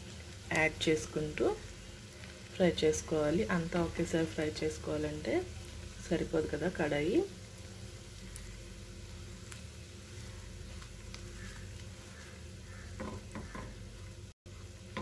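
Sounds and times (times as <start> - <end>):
bread frying and sizzling: 0.0 - 15.0.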